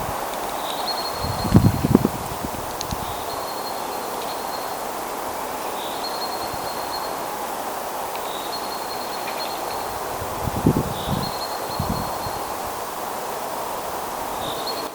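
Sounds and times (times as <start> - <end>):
outdoor rustling: 0.0 - 14.9.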